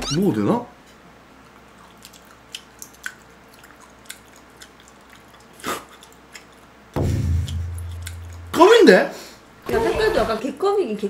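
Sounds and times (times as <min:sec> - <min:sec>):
man chewing steak: 0:01.4 - 0:08.5.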